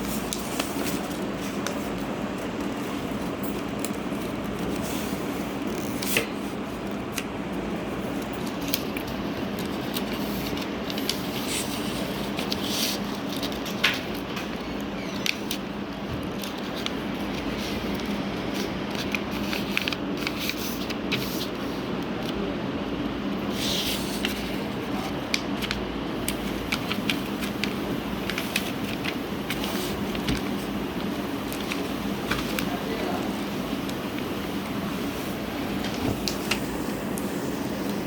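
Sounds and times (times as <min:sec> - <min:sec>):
paper crinkling: 0:08.1 - 0:22.4, 0:23.5 - 0:38.0.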